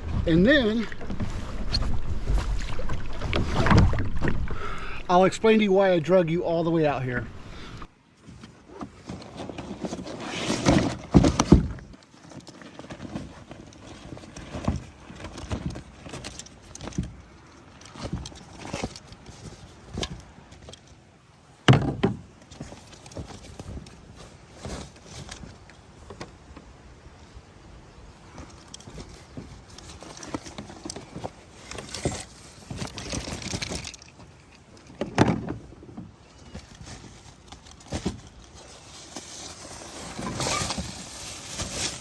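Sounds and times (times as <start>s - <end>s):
gear clunking in a kayak: 8.2s - 21.0s, 21.6s - 27.4s, 28.2s - 42.0s.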